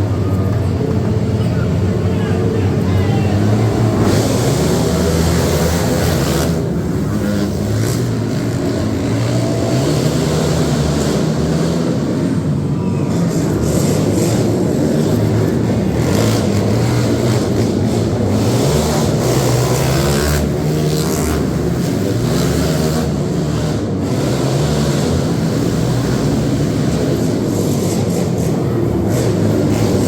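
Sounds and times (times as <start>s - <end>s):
vehicle engines running: 0.0s - 30.0s.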